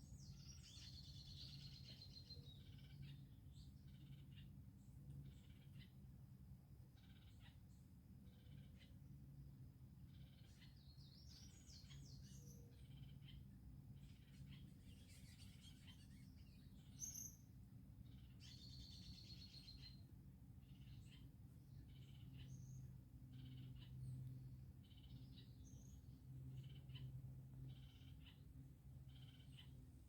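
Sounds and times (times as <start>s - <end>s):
faint birdsong chirps and trills: 0.0s - 30.0s
steady low hum: 7.8s - 30.0s.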